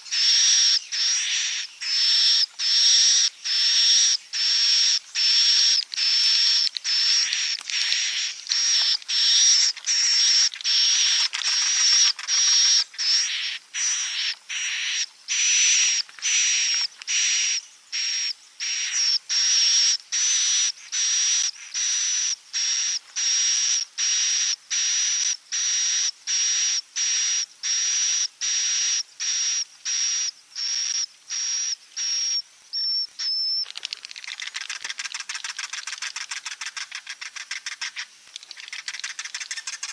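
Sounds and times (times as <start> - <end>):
high buzzy bird chirps: 0.0 - 24.9, 27.6 - 39.9
fast quiet ticking: 5.2 - 13.1, 33.6 - 39.9.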